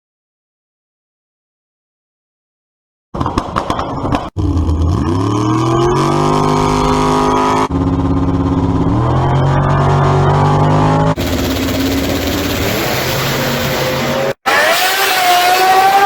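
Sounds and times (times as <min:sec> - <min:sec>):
engine revving: 0:04.4 - 0:16.0.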